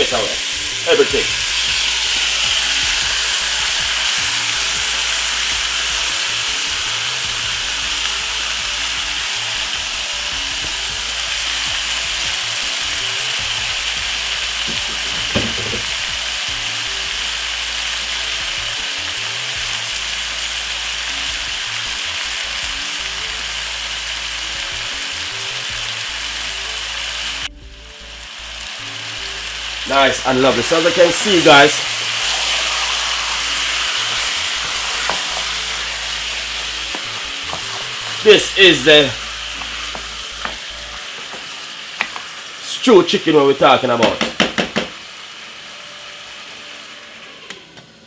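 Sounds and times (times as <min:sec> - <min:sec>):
chicken sizzling in oil: 0:00.0 - 0:48.0
brief knock: 0:14.7 - 0:15.9.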